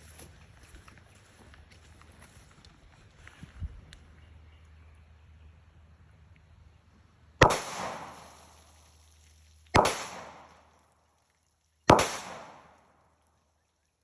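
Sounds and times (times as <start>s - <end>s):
gunshots with echo: 7.4s - 8.4s, 9.8s - 10.6s, 11.9s - 12.9s.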